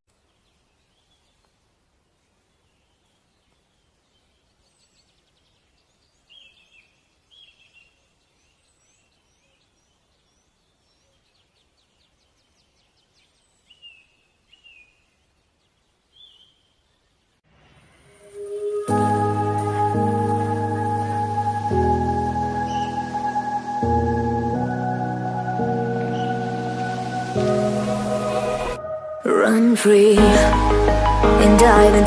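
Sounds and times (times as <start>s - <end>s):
bird falling calls: 17.8s - 28.8s
faint high chirps: 17.8s - 29.3s
music: 18.2s - 32.0s.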